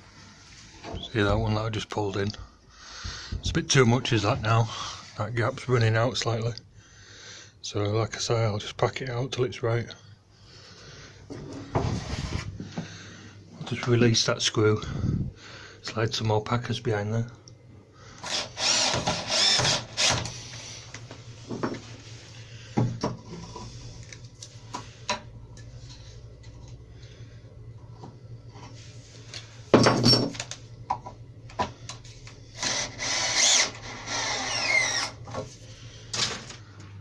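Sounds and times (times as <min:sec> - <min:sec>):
power drill driving screws: 0:18.2 - 0:20.4, 0:32.6 - 0:35.2.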